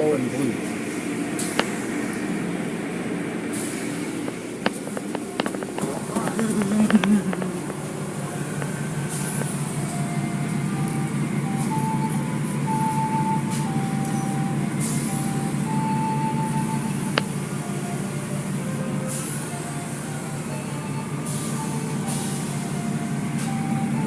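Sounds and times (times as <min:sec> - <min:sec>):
car wash machinery rumbling: 0:00.0 - 0:24.0
machinery clicks: 0:03.4 - 0:10.0
simple tune of held notes: 0:06.6 - 0:24.0.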